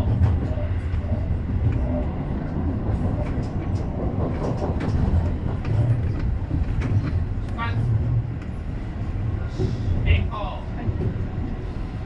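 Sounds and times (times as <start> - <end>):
wheels rumbling on rails: 0.0 - 12.0
clicks over rail joints: 3.0 - 7.6.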